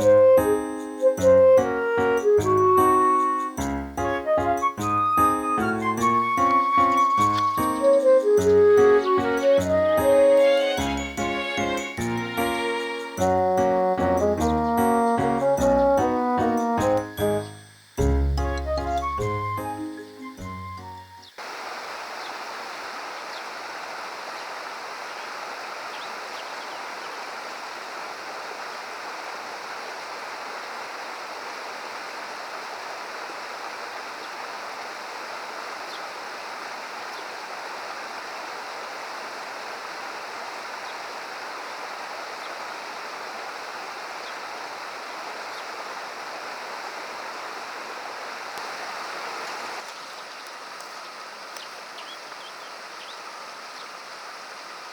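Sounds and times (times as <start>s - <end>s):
stream rushing over rocks: 21.4s - 54.9s.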